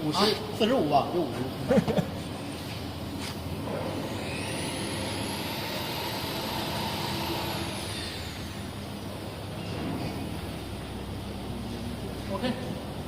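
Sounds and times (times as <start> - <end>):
plasma cutting machine running: 3.6 - 9.8.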